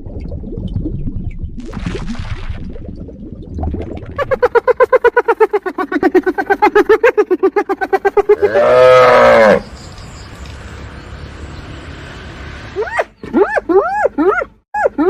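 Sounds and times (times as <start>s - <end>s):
large animal calling: 8.2s - 9.7s.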